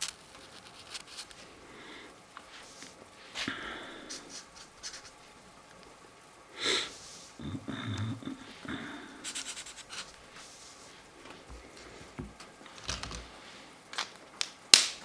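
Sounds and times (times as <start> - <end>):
marker scratching on paper: 4.1 - 5.2, 9.2 - 10.8.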